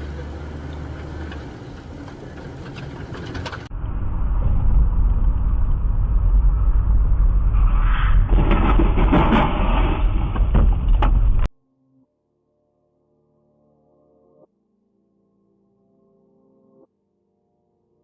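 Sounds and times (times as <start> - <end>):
car engine and tyre rumble: 0.0 - 11.5.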